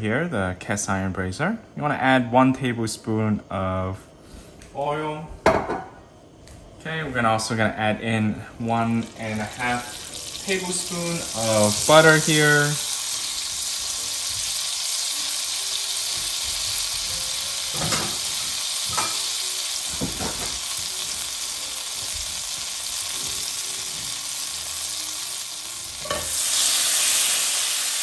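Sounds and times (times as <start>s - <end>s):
butter and oil sizzling: 8.2s - 28.0s
utensil knocking on pan: 17.7s - 19.3s.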